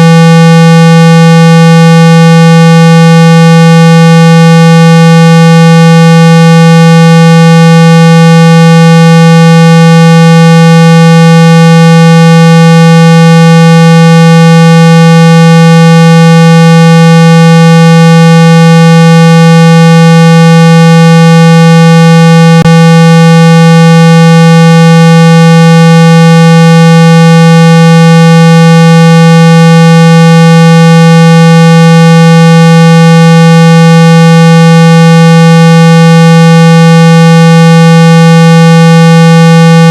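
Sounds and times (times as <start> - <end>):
loud steady synthetic tone: 0.0 - 39.9.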